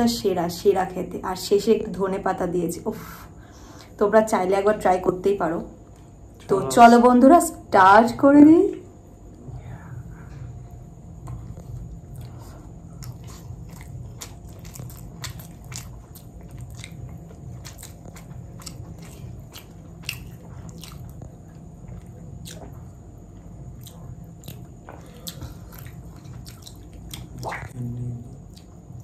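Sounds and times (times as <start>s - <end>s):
low steady hum: 0.0s - 29.0s
person chewing food: 11.1s - 29.0s
person humming mm: 27.4s - 28.3s.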